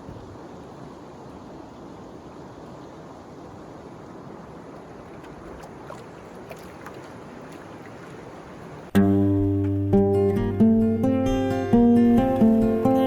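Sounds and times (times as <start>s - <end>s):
water around a canoe: 0.0s - 9.6s
wind: 0.0s - 13.0s.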